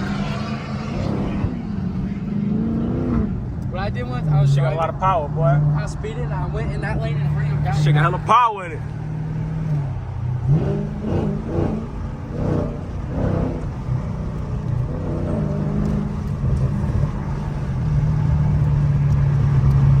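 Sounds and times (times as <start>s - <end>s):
car engine droning: 0.0s - 20.0s.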